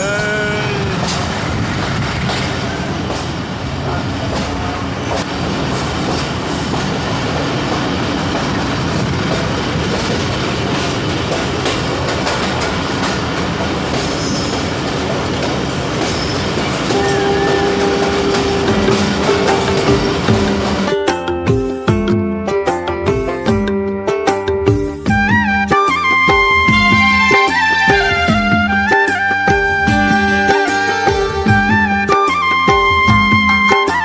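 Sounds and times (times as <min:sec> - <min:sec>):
train track clicks: 0:00.0 - 0:21.0
train wheels rumbling and rattling: 0:00.0 - 0:21.8.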